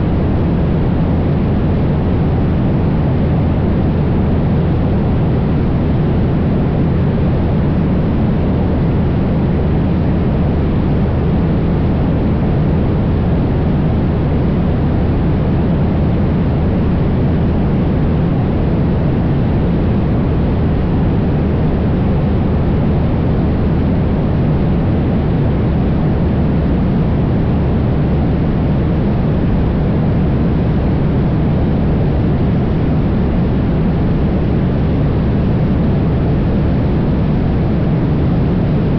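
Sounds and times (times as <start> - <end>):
propeller plane engine droning: 0.0 - 38.9.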